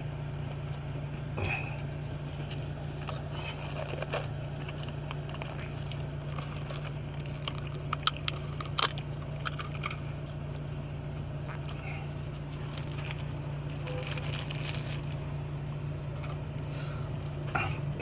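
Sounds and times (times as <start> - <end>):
car engine idling: 0.0 - 18.0
paper food box crackling: 2.2 - 10.3, 11.5 - 15.2.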